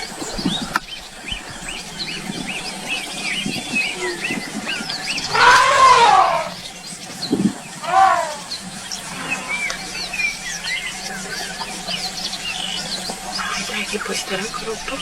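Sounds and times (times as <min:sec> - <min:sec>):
birds chirping: 0:00.0 - 0:15.0
bird call falling in pitch: 0:05.2 - 0:06.6, 0:07.8 - 0:08.6.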